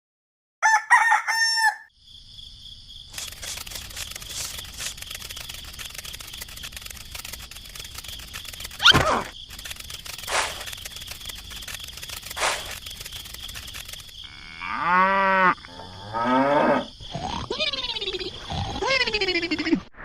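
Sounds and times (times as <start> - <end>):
rooster crowing: 0.6 - 1.9.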